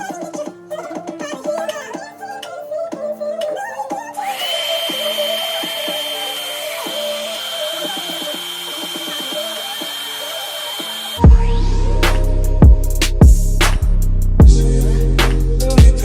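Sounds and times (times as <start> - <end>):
music playing: 0.0 - 16.0
hair dryer running: 4.3 - 11.2
music with heavy beat: 11.2 - 16.0.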